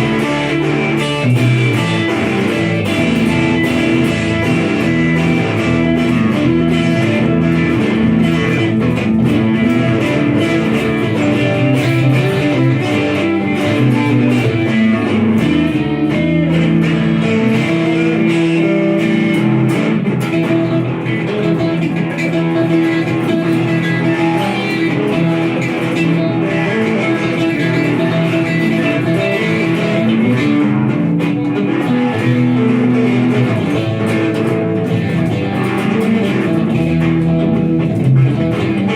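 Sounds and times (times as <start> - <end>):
blues-rock guitar jam: 0.0 - 38.9.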